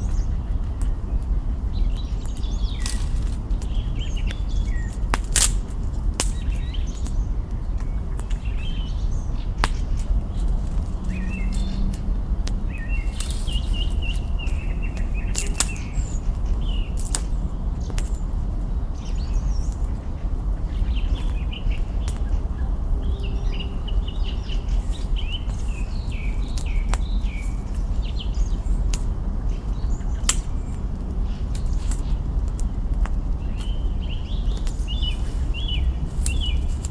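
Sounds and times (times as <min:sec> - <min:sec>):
small birds chirping: 0:00.0 - 0:36.9
steady low rumble: 0:00.0 - 0:36.9
campfire crackling and popping: 0:01.8 - 0:08.5, 0:09.5 - 0:18.3, 0:21.2 - 0:23.2.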